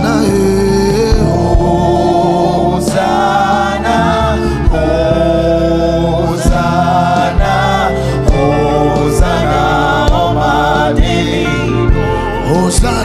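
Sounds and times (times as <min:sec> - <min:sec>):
instrumental backing: 0:00.0 - 0:13.0
voices singing long notes: 0:00.0 - 0:13.0.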